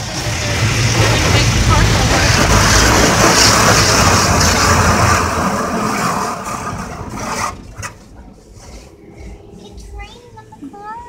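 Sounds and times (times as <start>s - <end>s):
car wash spraying water: 0.0s - 8.5s.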